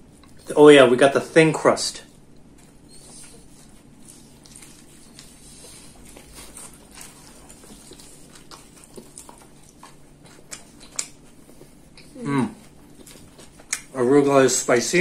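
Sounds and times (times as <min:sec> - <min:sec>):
chewing with small crunches: 0:00.0 - 0:00.7, 0:02.0 - 0:14.9.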